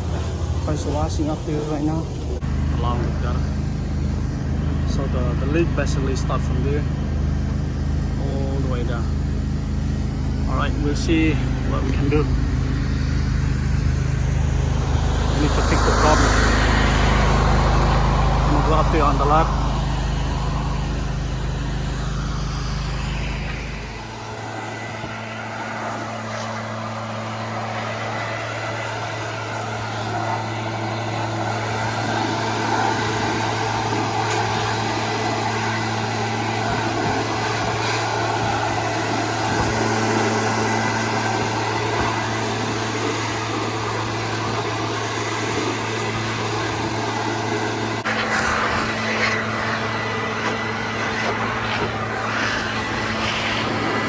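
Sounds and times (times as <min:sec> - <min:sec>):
deep rumble: 0:00.0 - 0:28.2
pressure washer engine hum: 0:00.0 - 0:54.0.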